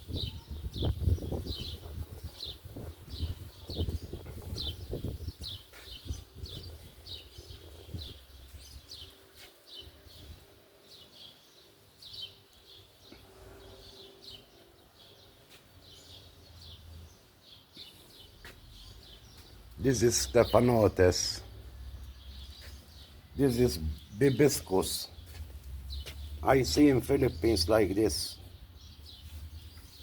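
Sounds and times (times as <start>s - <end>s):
small bird chirping: 0.0s - 19.9s.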